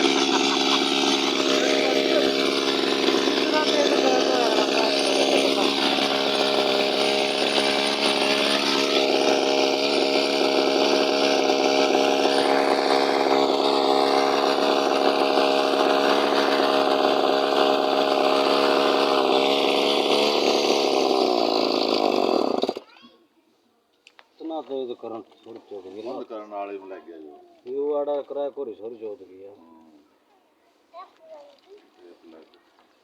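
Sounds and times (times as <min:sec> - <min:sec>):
small two-stroke engine running: 0:00.0 - 0:22.9.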